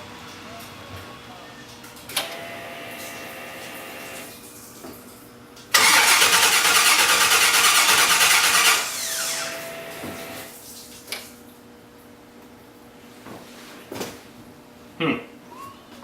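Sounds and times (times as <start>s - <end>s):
electric starter cranking engine: 5.8s - 10.5s.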